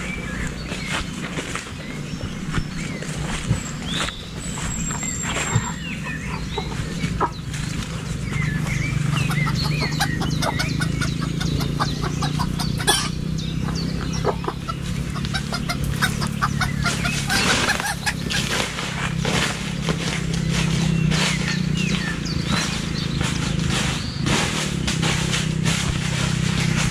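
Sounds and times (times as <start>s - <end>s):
chicken clucking: 2.9s - 18.9s.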